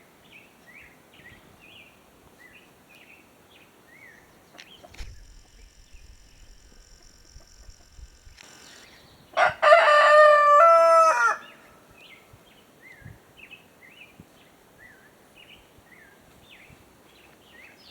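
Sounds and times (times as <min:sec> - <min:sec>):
small birds chirping: 0:00.8 - 0:09.4
rooster crowing: 0:09.4 - 0:11.7.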